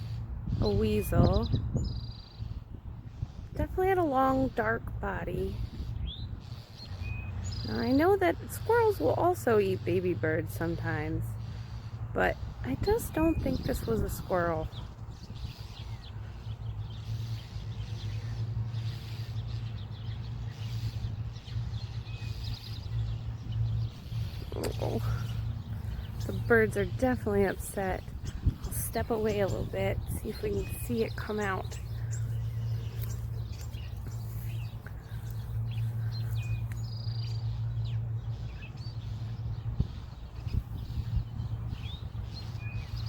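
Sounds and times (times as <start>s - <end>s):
songbirds agitated chirps: 0.0s - 43.0s
steady low hum: 0.0s - 43.0s
birds giving harsh alarm calls: 10.9s - 43.0s.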